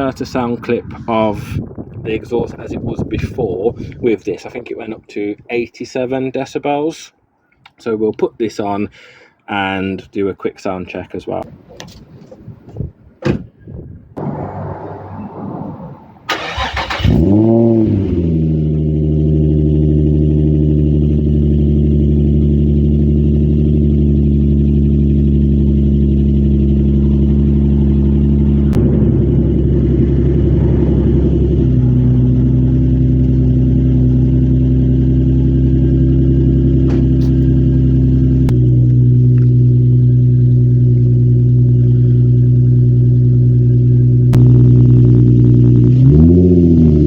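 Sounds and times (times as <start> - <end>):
car engine idling: 16.3 - 46.0.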